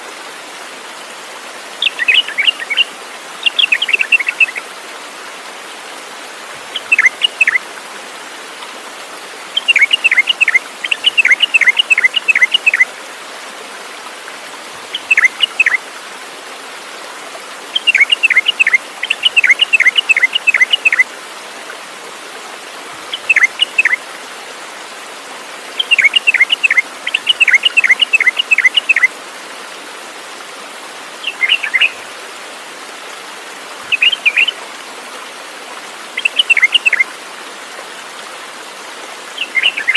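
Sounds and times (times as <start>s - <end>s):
songbird chirping: 1.8s - 2.8s, 3.4s - 4.6s, 6.8s - 7.6s, 9.6s - 12.8s, 14.9s - 15.8s, 17.8s - 21.0s, 23.1s - 24.0s, 25.8s - 29.1s, 31.2s - 32.0s, 33.9s - 34.6s, 36.2s - 37.1s, 39.4s - 39.9s.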